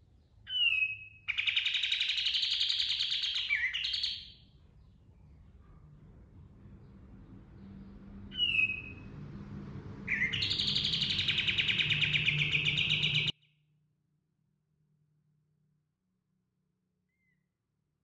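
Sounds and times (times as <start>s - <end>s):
songbird whistling and trilling: 0.5s - 4.4s, 8.3s - 9.2s, 10.1s - 13.3s
faint low hum: 4.3s - 13.3s.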